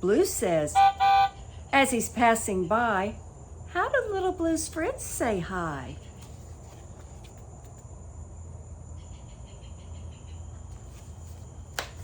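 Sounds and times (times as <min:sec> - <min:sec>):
low background hum: 0:00.0 - 0:12.0
crickets chirring: 0:00.1 - 0:12.0.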